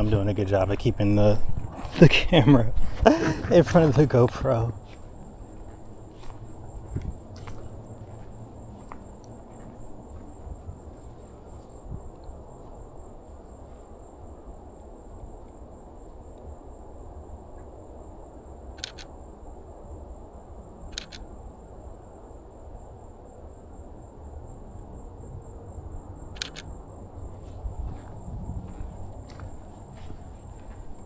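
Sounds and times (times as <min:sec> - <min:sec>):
camera shutter clicks: 0:18.8 - 0:19.1, 0:21.0 - 0:21.3, 0:26.4 - 0:26.7.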